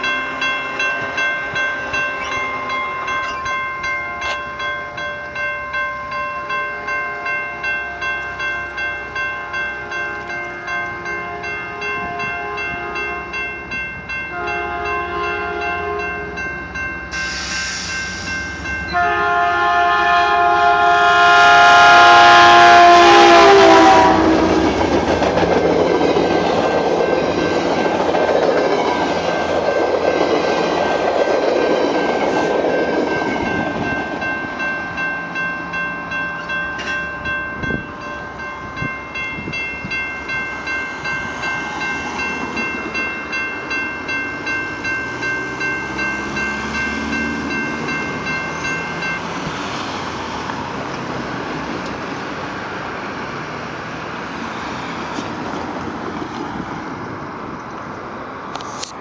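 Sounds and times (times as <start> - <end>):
railroad crossing bell dinging: 0.0 - 52.2
train coaches rumbling past: 0.0 - 59.0
train horn blast: 10.9 - 13.4, 14.3 - 16.4, 18.9 - 24.8.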